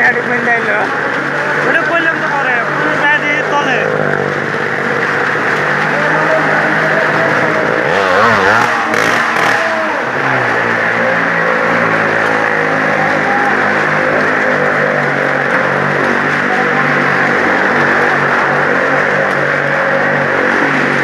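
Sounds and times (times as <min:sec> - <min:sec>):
vehicle engines running: 0:00.0 - 0:21.0
engine revving up and down: 0:01.4 - 0:21.0.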